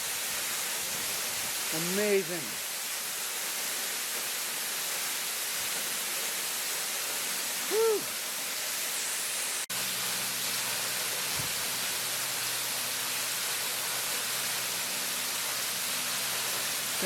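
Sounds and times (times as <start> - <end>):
waterfall roaring: 6.0 - 17.0.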